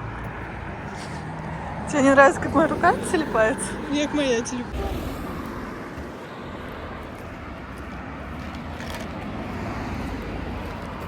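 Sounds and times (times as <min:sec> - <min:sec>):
low uneven rumble: 0:02.2 - 0:06.8.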